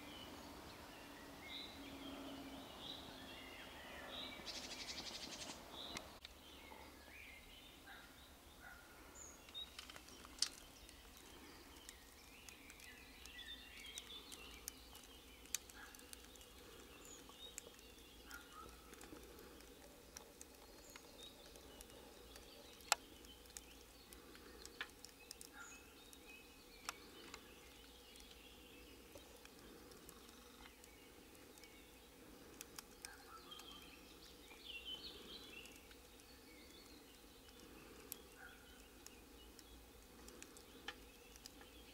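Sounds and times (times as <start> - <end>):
faint bird chirps: 0.0 - 41.9
sharp clicks and taps: 17.2 - 25.6.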